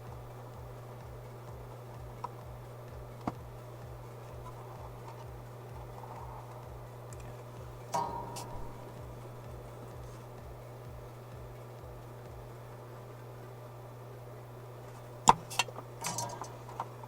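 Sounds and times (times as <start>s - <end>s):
hand tools clicking and tapping: 0.0s - 12.5s, 14.9s - 17.0s
low steady hum: 0.0s - 17.0s
metal tool clinking down: 7.8s - 9.1s, 15.3s - 16.9s.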